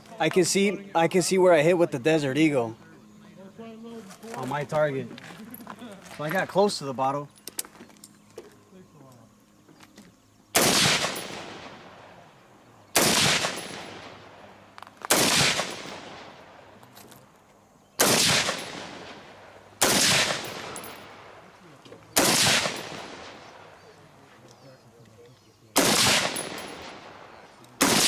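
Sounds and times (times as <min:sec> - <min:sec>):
gunshots: 0:10.6 - 0:12.2, 0:12.9 - 0:14.4, 0:15.1 - 0:16.6, 0:18.0 - 0:21.4, 0:22.1 - 0:23.8, 0:25.8 - 0:28.0.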